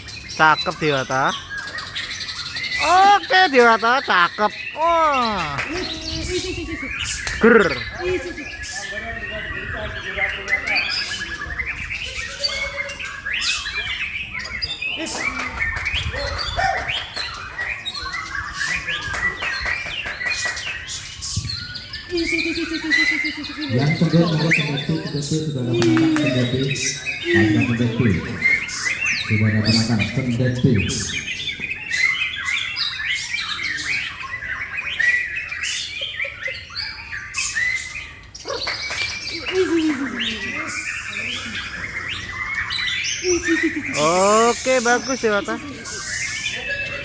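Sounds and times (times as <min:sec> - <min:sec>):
bird singing whistles and trills: 0:05.7 - 0:47.0.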